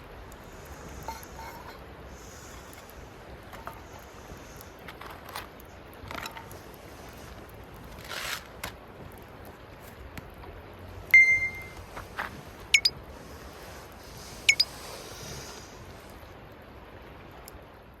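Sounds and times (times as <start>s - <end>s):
campfire burning: 0.0s - 18.0s
fire crackles and pops: 0.0s - 18.0s
short high-pitched squeal: 14.5s - 14.7s.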